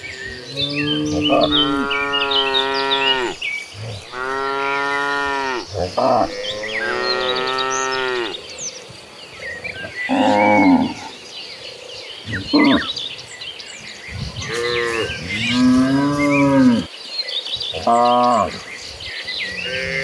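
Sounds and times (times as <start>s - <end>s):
cattle mooing: 0.4s - 8.4s.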